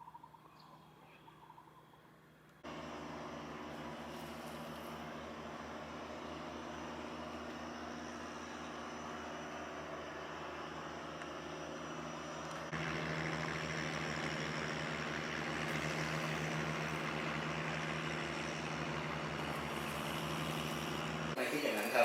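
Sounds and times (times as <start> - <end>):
boat engine running: 2.6 - 22.0.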